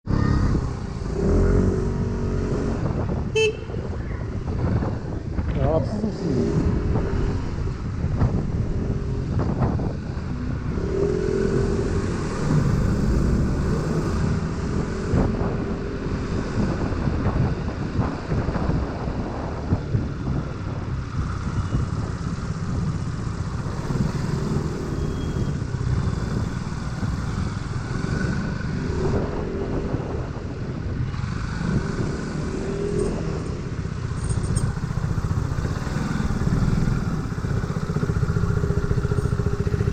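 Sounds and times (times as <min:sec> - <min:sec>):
wind and road rumble: 0:00.0 - 0:39.9
scooter engine running: 0:34.0 - 0:39.9.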